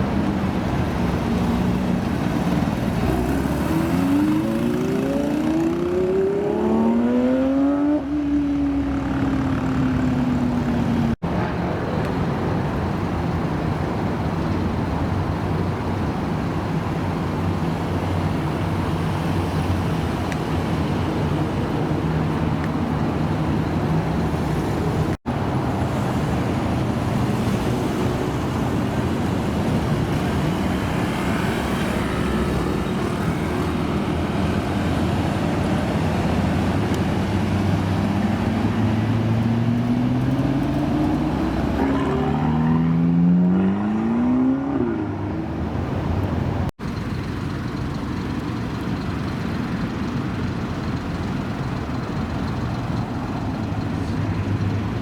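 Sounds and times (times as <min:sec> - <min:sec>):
car engine revving and pulling away: 0:00.0 - 0:11.2, 0:13.4 - 0:55.0
traffic noise: 0:00.0 - 0:55.0
cars idling: 0:46.2 - 0:55.0.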